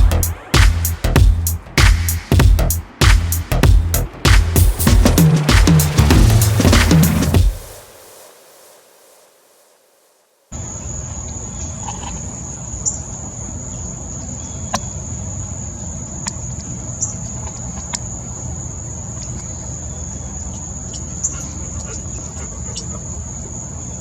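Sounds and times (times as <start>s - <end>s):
low rumble: 0.0s - 7.7s.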